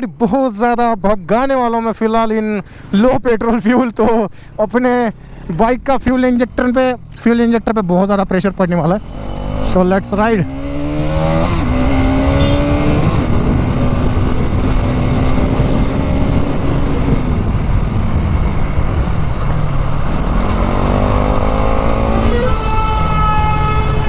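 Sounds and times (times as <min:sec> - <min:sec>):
motorcycle engine accelerating: 0:05.2 - 0:24.0
wind rush over microphone: 0:10.6 - 0:23.2.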